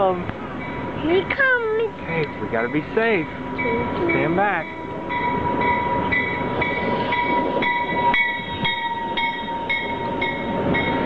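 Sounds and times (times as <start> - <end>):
train cars rumbling past: 0.0 - 11.0
steady high tone: 2.2 - 11.0.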